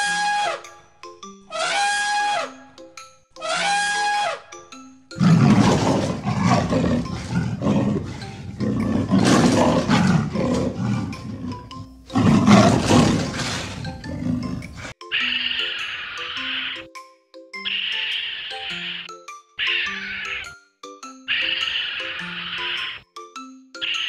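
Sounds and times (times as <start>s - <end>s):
elephant trumpeting: 0.0s - 0.7s, 1.5s - 2.6s, 3.4s - 4.5s, 5.2s - 16.8s, 17.7s - 20.5s, 21.3s - 23.0s
light tinkling background music: 0.7s - 1.6s, 2.6s - 3.5s, 4.5s - 24.0s
leopard growling: 5.2s - 15.0s.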